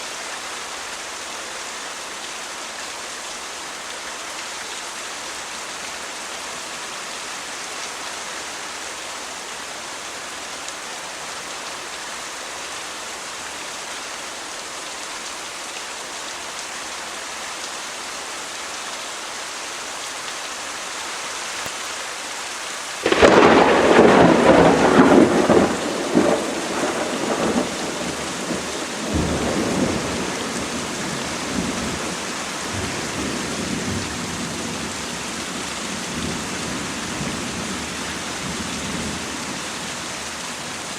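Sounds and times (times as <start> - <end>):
steady rain: 0.0 - 40.9
thunderclap rolling into rumble: 23.0 - 28.2.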